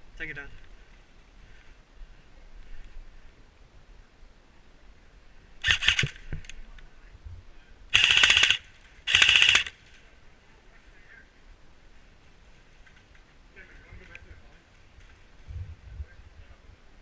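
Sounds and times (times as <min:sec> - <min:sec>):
airsoft rifle bursts: 0:05.6 - 0:06.2, 0:07.9 - 0:09.9.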